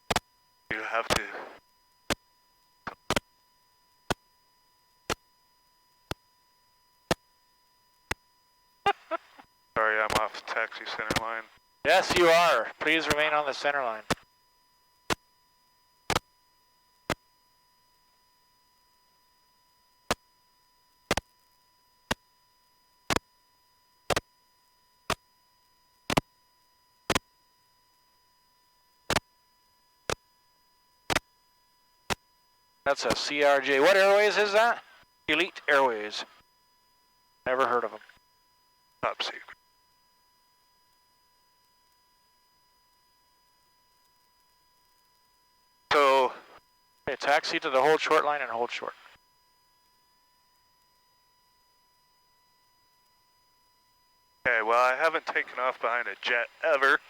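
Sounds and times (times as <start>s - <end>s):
faint steady high tone: 0.4s - 57.0s.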